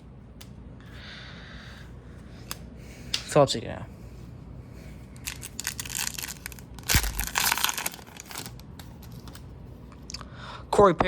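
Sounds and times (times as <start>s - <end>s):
wrapper crinkling and tearing: 5.2s - 9.4s.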